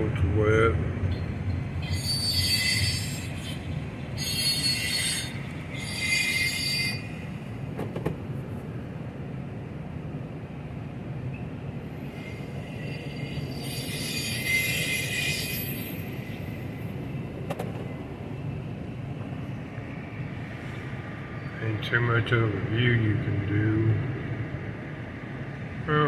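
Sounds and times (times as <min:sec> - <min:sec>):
train rolling past: 0:00.0 - 0:26.0
train wheels squealing: 0:01.0 - 0:07.6, 0:11.3 - 0:18.6, 0:19.3 - 0:21.7.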